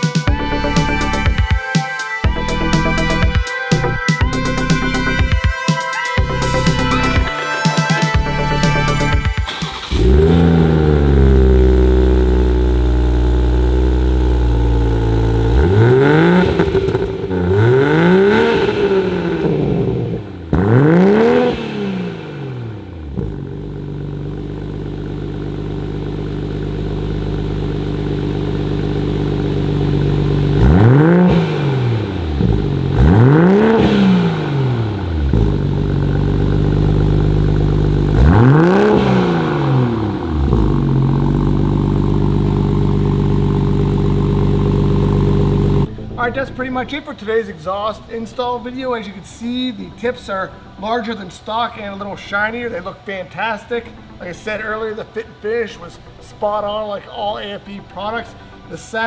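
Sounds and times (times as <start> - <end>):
car engine idling and revving: 0.0 - 1.5, 2.3 - 5.4, 6.2 - 7.3, 8.2 - 49.1.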